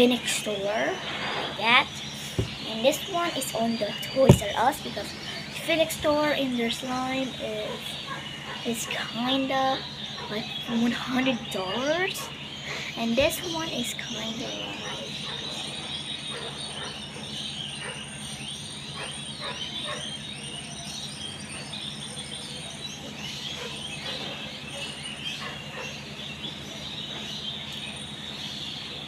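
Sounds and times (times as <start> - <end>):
small birds chirping: 0.0 - 29.0
steady low hum: 0.0 - 29.0.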